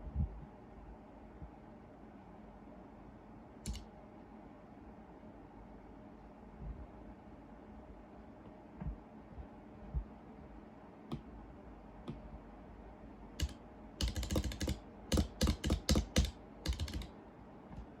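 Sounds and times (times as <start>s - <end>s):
keyboard keystrokes: 3.6s - 3.9s, 13.4s - 17.1s.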